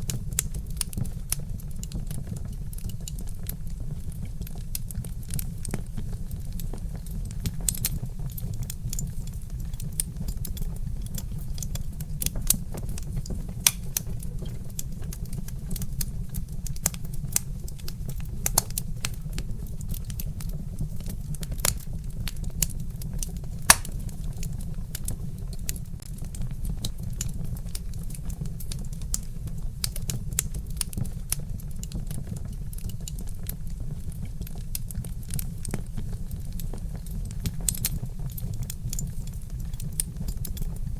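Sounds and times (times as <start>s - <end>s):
low fire rumble: 0.0s - 40.9s
wood fire crackling: 0.0s - 40.9s
sharp pops and snaps: 4.7s - 24.2s, 34.4s - 40.7s.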